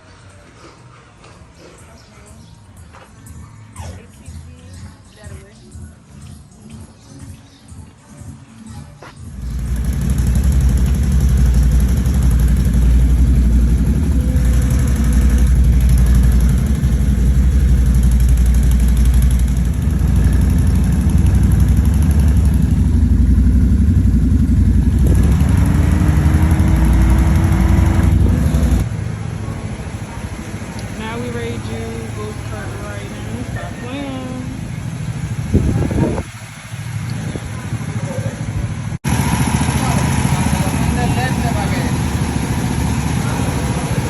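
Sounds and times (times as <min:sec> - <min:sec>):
small vehicle engine rumbling: 0:08.8 - 0:44.0.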